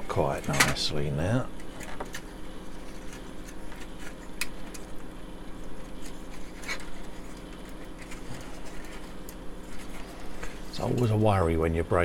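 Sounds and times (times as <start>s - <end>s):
steady low hum: 0.0s - 12.0s
plastic parts clicking and cracking: 1.6s - 5.0s.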